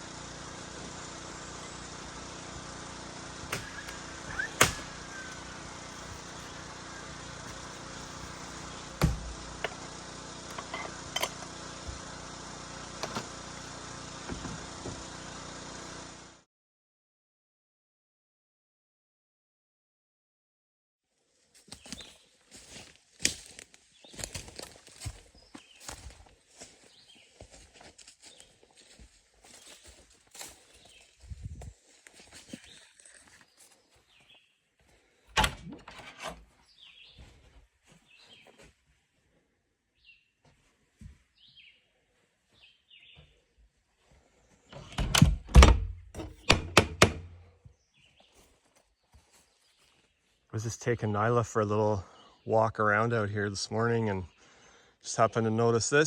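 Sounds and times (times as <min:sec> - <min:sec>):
birds chirping: 0:00.0 - 0:16.0
steady mechanical hum: 0:00.0 - 0:16.4.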